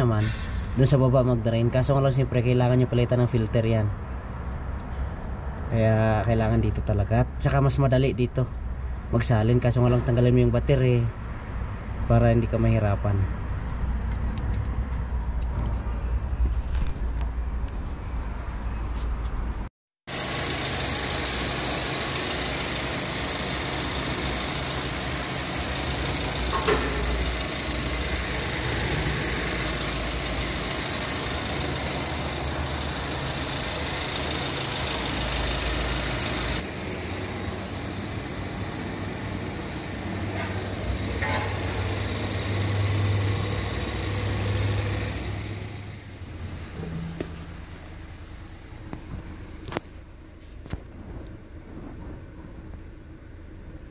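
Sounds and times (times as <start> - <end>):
car engine idling: 20.1 - 50.5.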